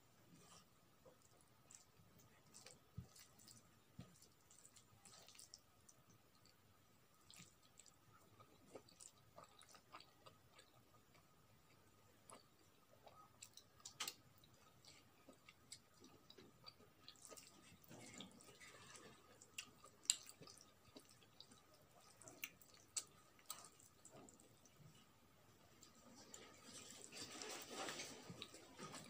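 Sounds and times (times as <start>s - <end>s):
rice squishing by hand: 0.0s - 6.5s, 25.9s - 29.0s
chewing and lip smacks: 0.4s - 6.6s, 7.2s - 25.0s.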